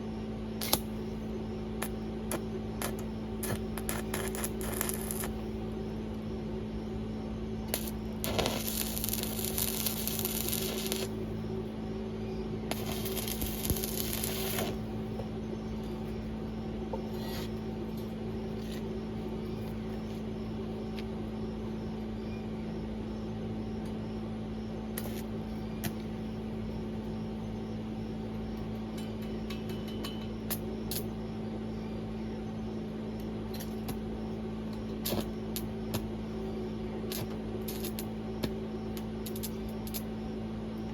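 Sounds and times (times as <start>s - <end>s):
steady electrical hum: 0.0s - 40.9s
arc welding crackling hiss: 0.6s - 1.1s, 1.8s - 5.7s, 7.7s - 11.3s, 12.7s - 15.4s, 25.0s - 26.7s, 35.0s - 36.5s, 37.1s - 40.1s.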